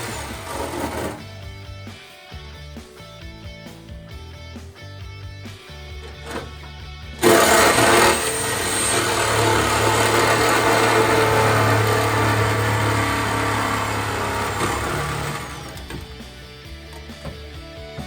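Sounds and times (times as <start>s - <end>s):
power tool running: 0.0s - 1.5s, 7.2s - 18.0s.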